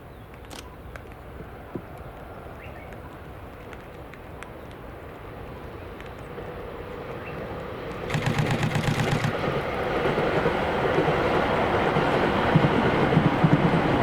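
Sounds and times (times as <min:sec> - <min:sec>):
train running noise: 0:01.0 - 0:14.0
fast rattling clatter: 0:08.1 - 0:09.4.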